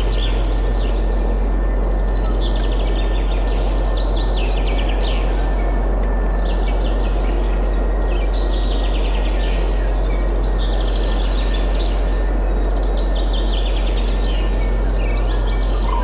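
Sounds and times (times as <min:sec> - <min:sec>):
birds trilling: 0:10.4 - 0:16.0.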